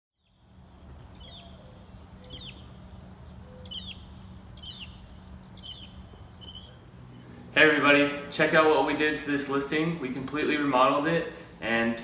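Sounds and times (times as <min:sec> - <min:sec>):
bird chirping: 0:00.2 - 0:07.4
steady low hum and rumble: 0:00.2 - 0:12.0.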